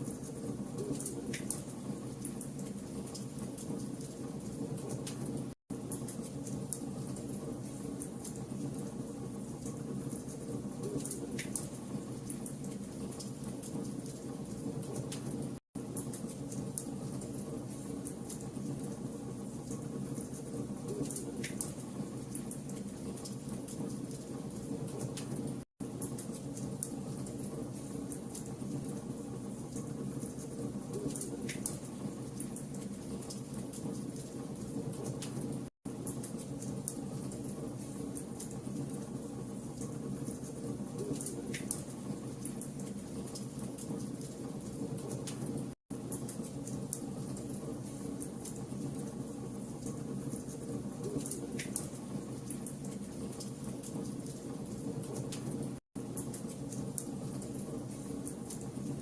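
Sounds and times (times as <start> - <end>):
fire crackling and popping: 29.7 - 39.0, 39.8 - 58.8.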